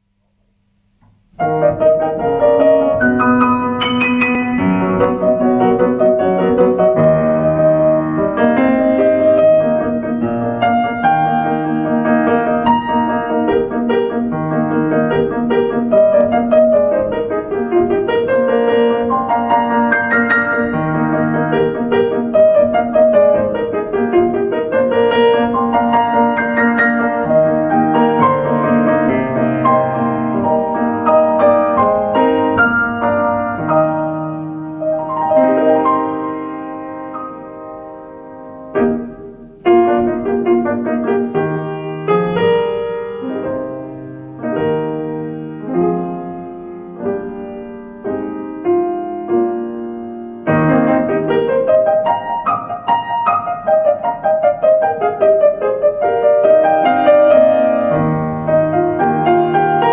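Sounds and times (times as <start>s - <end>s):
solo piano: 0.0s - 59.9s.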